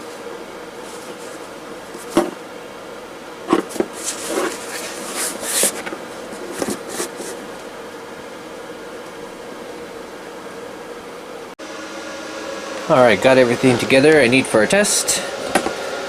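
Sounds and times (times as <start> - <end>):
rustling: 3.5 - 7.6.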